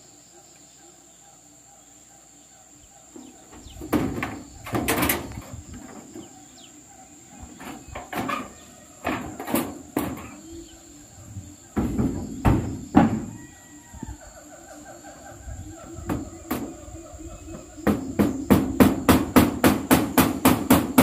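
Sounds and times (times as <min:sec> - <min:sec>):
sharp knocks and bangs: 0:03.2 - 0:06.3, 0:07.4 - 0:10.4, 0:11.7 - 0:13.4, 0:16.0 - 0:16.8, 0:17.5 - 0:21.0.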